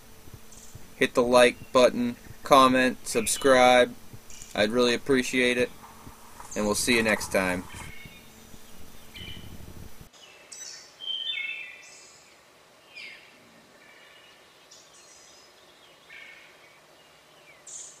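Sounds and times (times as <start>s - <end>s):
low room hum: 0.0s - 11.0s
birds chirping: 0.0s - 18.0s.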